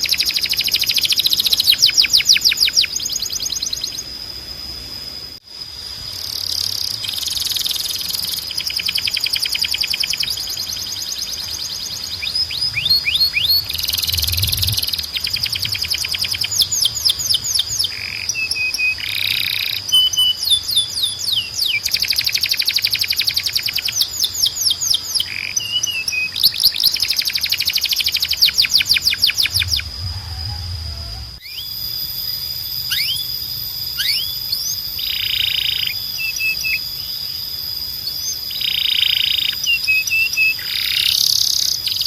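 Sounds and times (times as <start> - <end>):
canary singing trills: 0.0 - 4.1, 6.3 - 42.0
steady high whistle note: 28.4 - 34.9.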